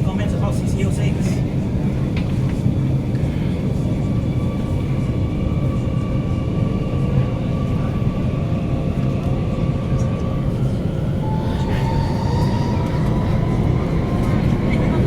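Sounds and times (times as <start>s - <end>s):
train wheels rumbling on track: 0.0s - 15.0s
faint traction motor whine: 10.5s - 15.0s.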